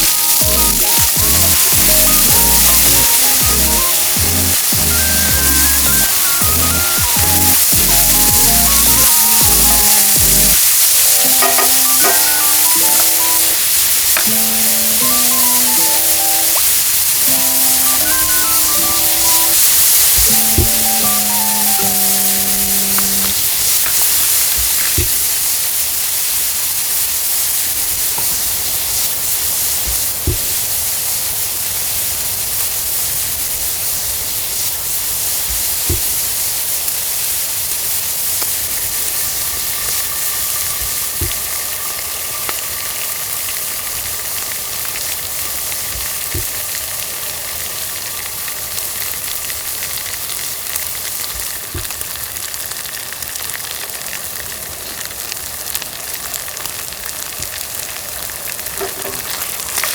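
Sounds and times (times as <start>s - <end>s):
faint whistle-like tones: 0.0s - 10.2s, 11.6s - 13.7s
food sizzling in a frying pan: 0.0s - 59.9s.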